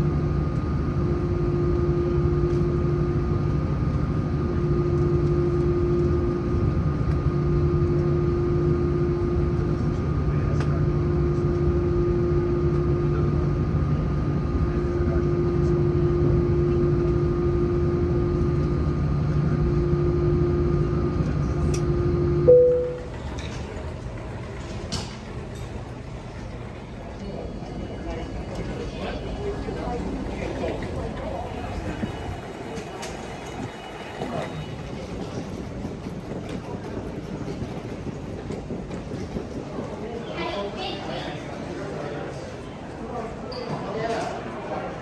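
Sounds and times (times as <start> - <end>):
steady hum tones: 0.0 - 34.2
aircraft cabin engine drone: 0.0 - 40.2.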